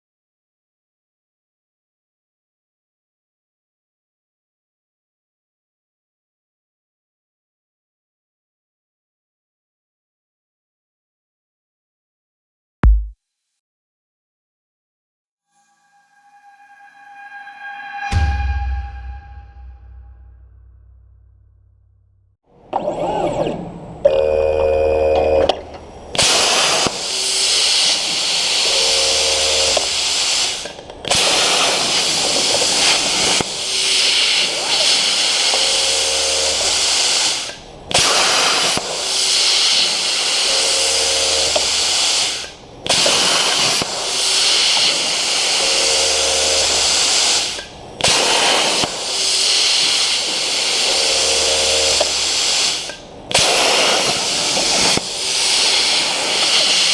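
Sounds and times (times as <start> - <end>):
short hum: 15.6 - 22.1.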